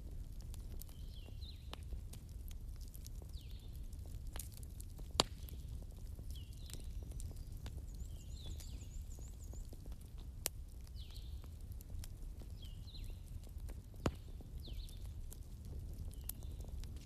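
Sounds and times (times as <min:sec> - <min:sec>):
fire crackling in a fireplace: 0:00.0 - 0:17.0
sharp pops from fire: 0:00.0 - 0:17.0
faint high chirping calls: 0:06.3 - 0:09.9.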